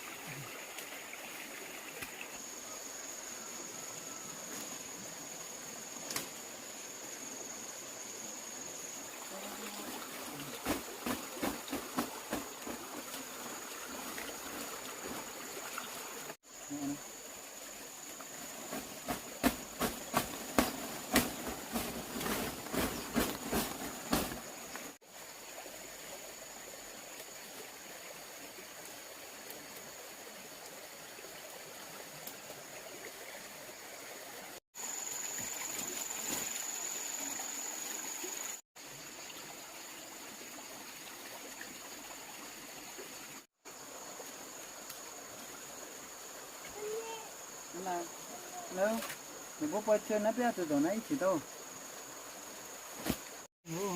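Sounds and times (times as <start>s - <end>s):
high-pitched insect drone: 16.4s - 20.0s.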